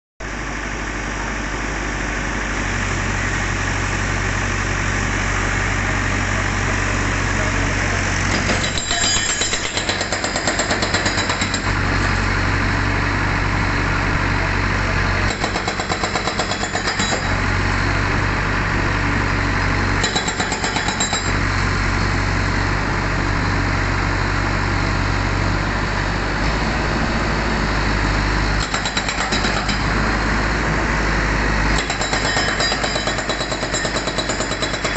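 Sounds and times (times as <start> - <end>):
diesel engine running: 0.2 - 34.9
hydraulic breaker hammering: 8.3 - 11.8, 15.2 - 17.4, 20.0 - 21.4, 28.6 - 30.0, 31.7 - 34.9.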